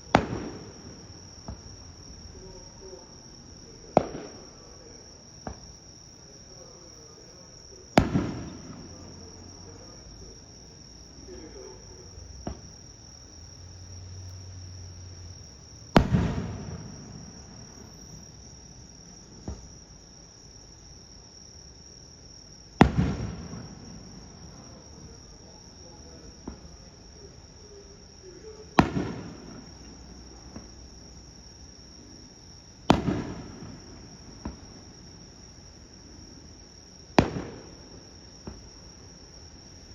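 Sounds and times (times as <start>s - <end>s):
faint firework pops: 0.0s - 1.8s, 3.8s - 5.9s, 7.9s - 10.0s, 12.3s - 12.8s, 15.9s - 18.4s, 19.3s - 19.8s, 22.8s - 25.2s, 26.2s - 26.8s, 28.8s - 30.9s, 32.9s - 35.0s, 37.2s - 38.8s
firework shells booming: 0.0s - 10.4s, 11.1s - 12.8s, 15.8s - 20.0s, 22.8s - 27.0s, 28.4s - 31.0s, 32.7s - 35.2s, 37.1s - 39.1s
insects chirring: 0.0s - 39.9s.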